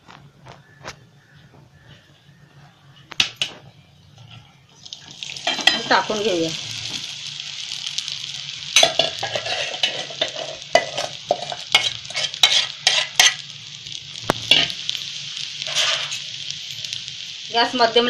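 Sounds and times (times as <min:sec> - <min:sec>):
frying sizzle in oil: 0:00.1 - 0:18.0
spatula scraping a pan: 0:08.8 - 0:13.4, 0:15.6 - 0:16.2.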